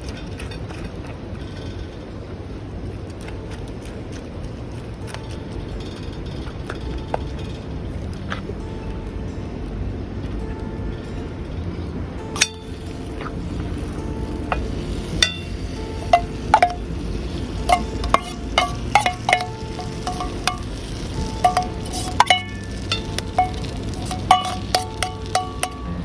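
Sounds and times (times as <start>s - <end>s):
steady low background noise: 0.0s - 26.0s
utensil clinking against metal pot: 12.4s - 26.0s.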